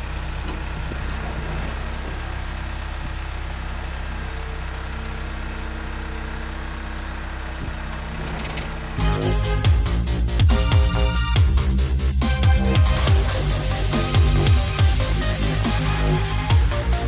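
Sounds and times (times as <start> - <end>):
vehicle engine idling: 0.0 - 17.0
electronic dance music: 9.0 - 17.0.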